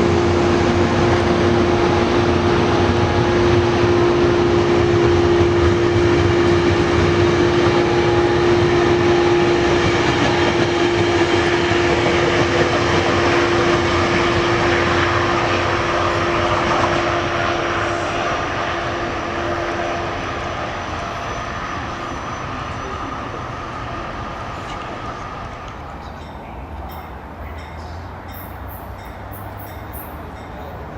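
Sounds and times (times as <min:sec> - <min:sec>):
rushing rail noise: 0:00.0 - 0:30.9
train passing: 0:00.0 - 0:30.9.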